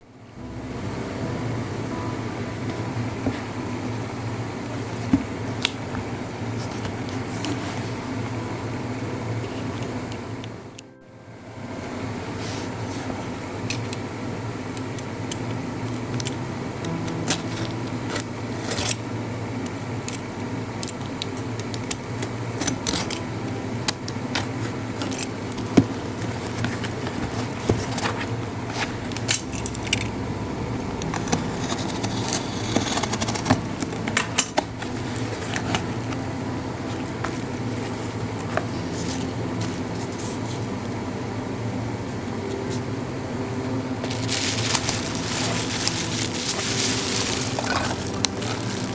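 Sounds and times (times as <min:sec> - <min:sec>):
low room hum: 0:00.0 - 0:48.9
packaging clicks and rustles: 0:44.0 - 0:48.9.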